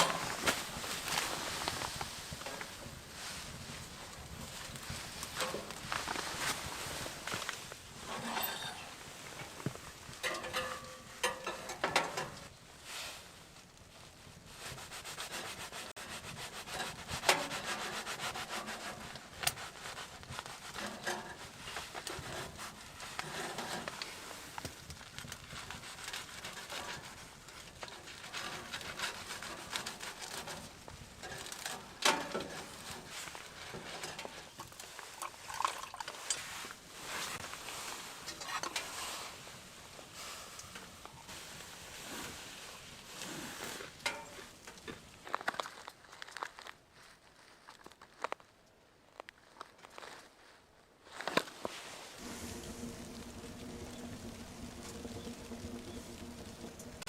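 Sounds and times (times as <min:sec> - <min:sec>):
rubbing and scraping handling: 0:00.0 - 0:13.2, 0:14.0 - 0:48.4
sharp clicks and crackles: 0:52.2 - 0:57.0.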